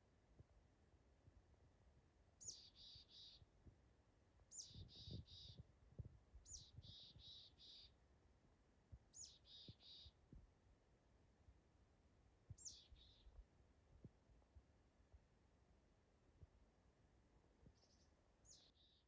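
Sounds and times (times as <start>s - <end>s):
songbird singing: 2.4s - 3.6s, 4.4s - 5.7s, 6.3s - 8.0s, 9.0s - 10.3s, 12.5s - 13.4s, 17.6s - 19.0s.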